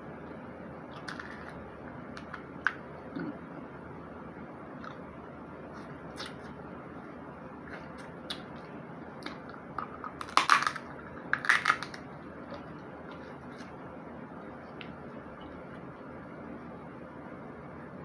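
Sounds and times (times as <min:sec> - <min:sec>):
crab shell cracking and snapping: 0:09.2 - 0:12.0.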